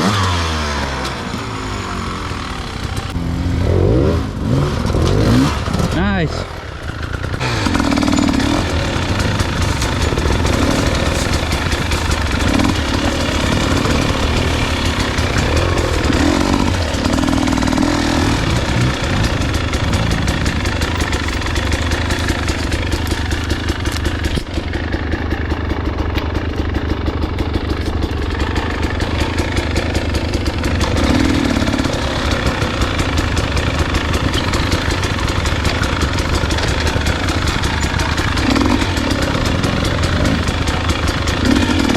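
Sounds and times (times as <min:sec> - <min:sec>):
dirt bike engine running: 0:00.0 - 0:41.9.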